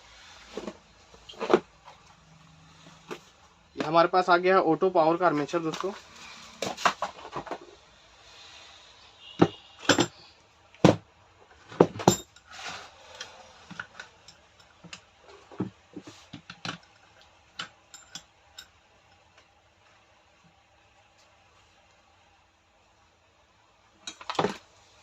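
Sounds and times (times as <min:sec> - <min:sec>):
metal tools clicking and knocking: 0:09.4 - 0:11.0, 0:11.7 - 0:12.5, 0:13.1 - 0:19.3, 0:24.0 - 0:24.5.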